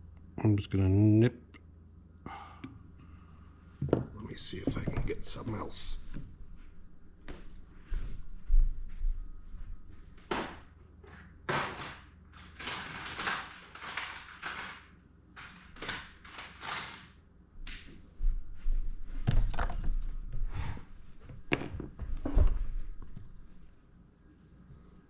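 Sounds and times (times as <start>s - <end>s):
rustling and clattering of tools: 19.1s - 23.8s.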